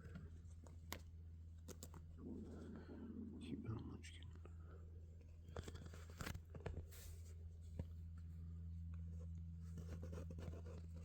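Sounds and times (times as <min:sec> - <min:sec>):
soft scratches and rustles: 0:05.2 - 0:11.0.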